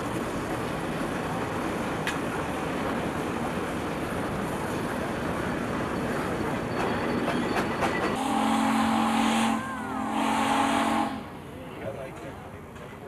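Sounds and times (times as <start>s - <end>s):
steam whistle blowing: 8.1s - 11.3s.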